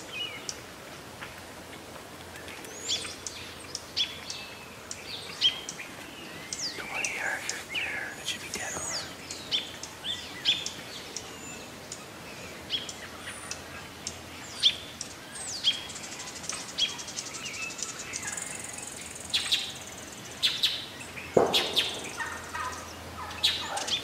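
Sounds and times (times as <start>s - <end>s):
birds chirping: 2.6s - 24.0s.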